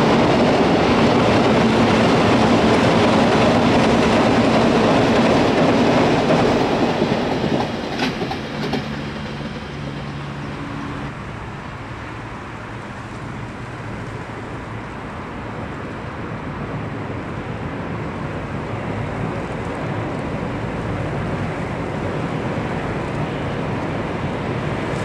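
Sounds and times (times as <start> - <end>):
train wheels clattering on rails: 0.0 - 10.5.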